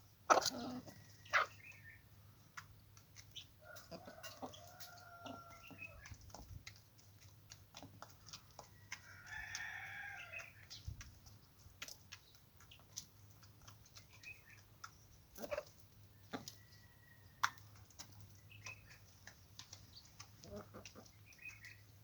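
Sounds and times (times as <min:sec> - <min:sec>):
rooster crowing: 0:03.7 - 0:05.7
light clicks and taps: 0:17.4 - 0:21.8.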